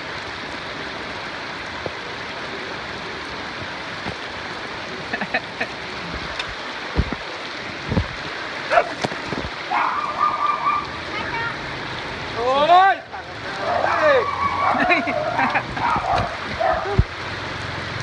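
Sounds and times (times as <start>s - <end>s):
rain falling: 0.0s - 18.0s
low thumps: 6.1s - 8.3s, 15.5s - 17.5s
dog barking and yipping: 9.7s - 11.0s, 13.6s - 17.1s.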